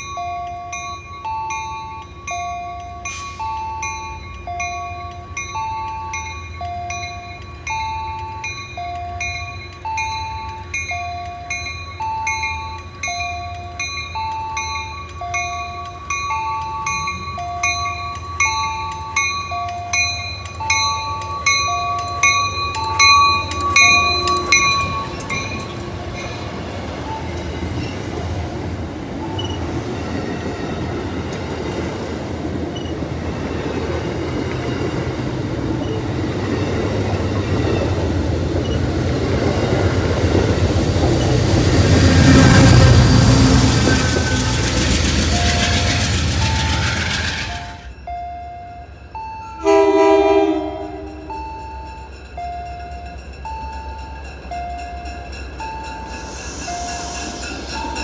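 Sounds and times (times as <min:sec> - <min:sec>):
two-note warning bell ringing: 0:00.0 - 0:28.6, 0:47.6 - 0:58.0
train rumbling past: 0:00.0 - 0:58.0.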